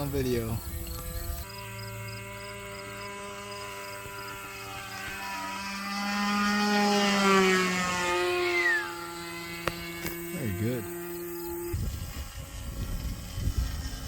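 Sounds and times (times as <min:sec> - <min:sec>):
model airplane engine: 0:00.0 - 0:14.0.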